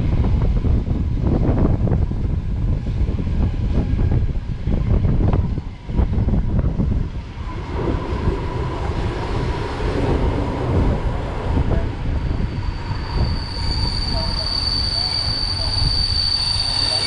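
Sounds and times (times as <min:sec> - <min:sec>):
train wheels rumbling on rails: 0:00.0 - 0:17.0
brakes squealing: 0:12.2 - 0:17.0.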